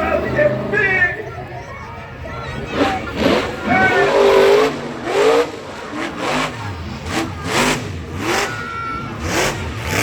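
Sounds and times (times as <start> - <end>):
truck engine revving hard: 0.0 - 1.1, 2.5 - 10.0.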